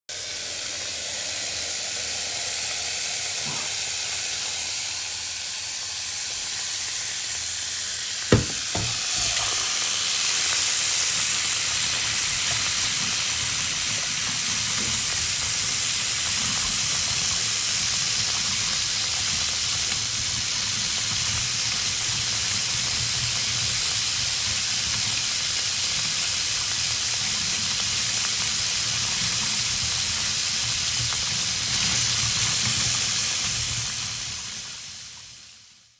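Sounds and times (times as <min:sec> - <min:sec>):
sharp knock: 0:08.3 - 0:09.0.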